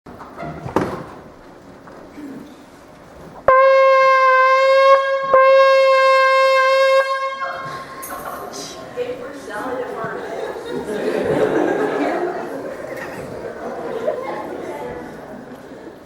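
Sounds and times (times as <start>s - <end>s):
horn blowing long note: 3.5s - 8.1s.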